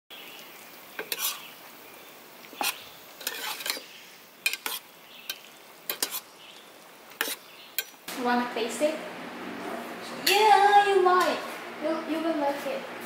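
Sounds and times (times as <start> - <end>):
faint steady hiss: 0.1 - 9.0
metal spoon scraping a pan: 1.0 - 1.5, 2.5 - 6.3, 7.1 - 8.0.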